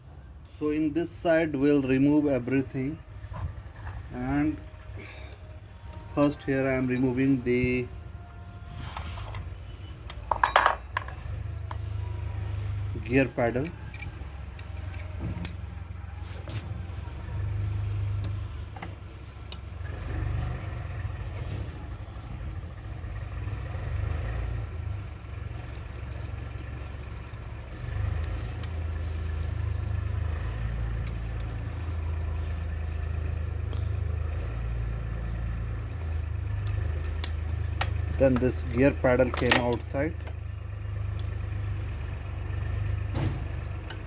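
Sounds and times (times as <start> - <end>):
vehicle engine rumbling: 0.0 - 44.0
hand tools clicking: 13.4 - 15.7, 34.6 - 40.2.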